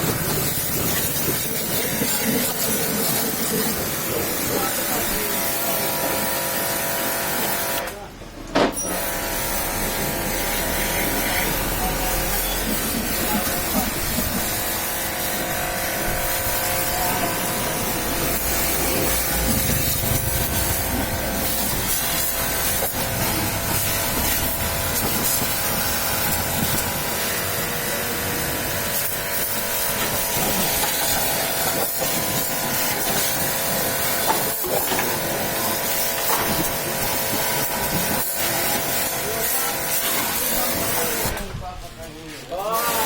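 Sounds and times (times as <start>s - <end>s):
high-pressure water spray hissing: 0.0s - 7.9s, 8.9s - 41.4s, 42.7s - 43.0s
machine hum: 9.0s - 40.0s.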